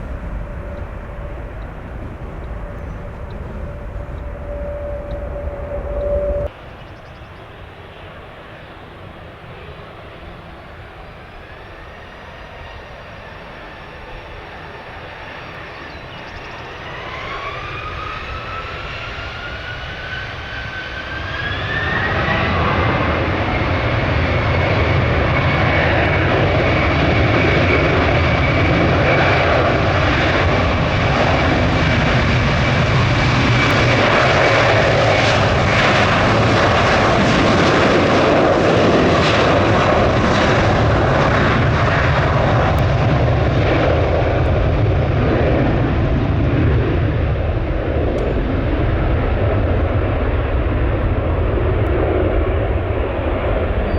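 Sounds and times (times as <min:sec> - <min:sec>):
jet engines spooling up: 0:00.0 - 0:06.5.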